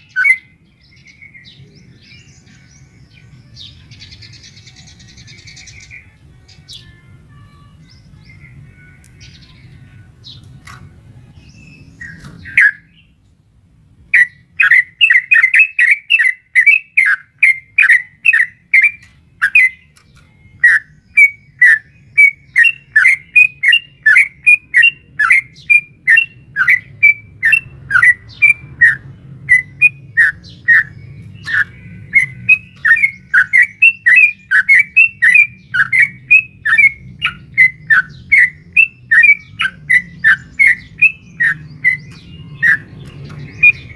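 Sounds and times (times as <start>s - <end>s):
bird singing bubbly notes: 14.2s - 43.9s.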